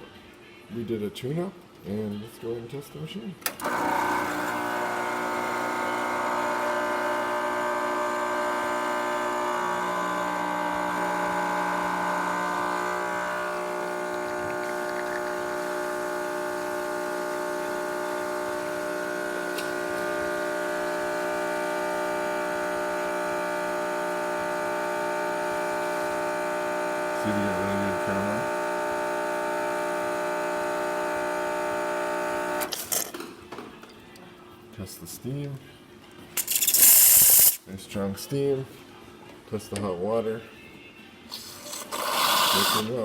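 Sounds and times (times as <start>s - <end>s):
espresso machine pump buzzing: 3.6s - 32.8s, 41.5s - 43.0s.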